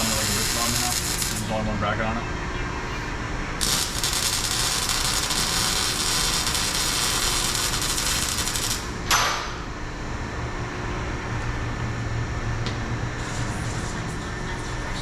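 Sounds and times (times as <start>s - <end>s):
arc welder crackling: 0.0s - 1.8s, 3.6s - 9.2s.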